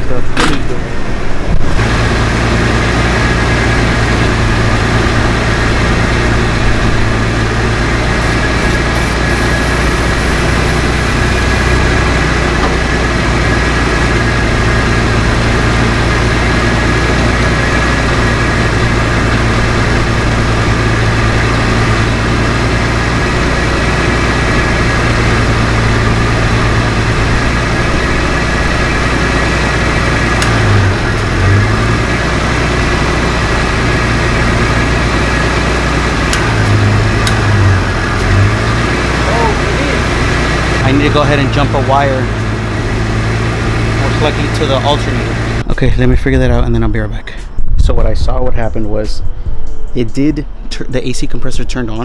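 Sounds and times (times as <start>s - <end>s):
pickup engine idling: 0.0s - 45.9s.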